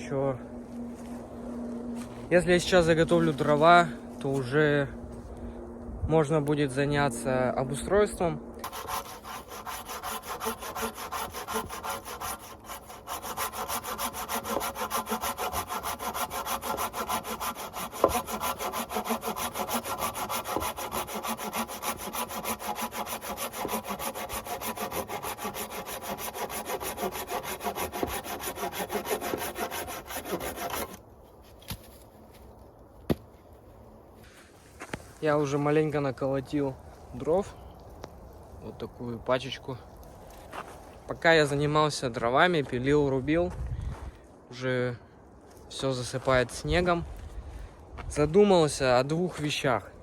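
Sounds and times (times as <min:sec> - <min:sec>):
hand saw cutting wood: 0:08.6 - 0:31.0.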